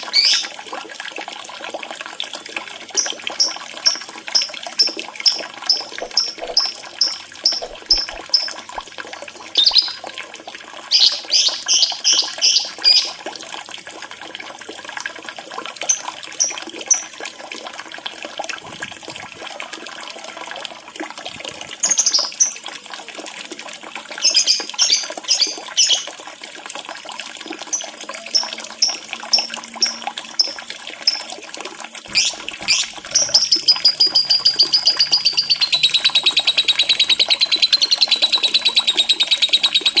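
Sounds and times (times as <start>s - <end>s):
lovebird chirping: 0.0s - 0.5s, 3.0s - 8.6s, 9.6s - 10.0s, 32.1s - 40.0s
trickling running water: 0.0s - 40.0s.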